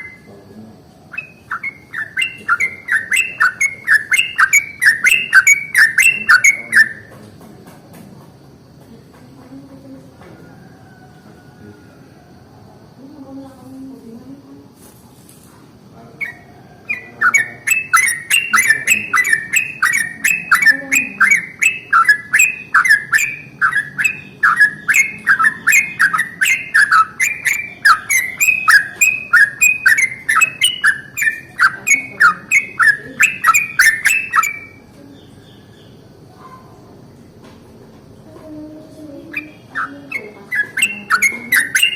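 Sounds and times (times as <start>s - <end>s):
bird singing rapid whistled roll: 0.0s - 7.1s, 16.2s - 36.1s, 38.9s - 41.9s.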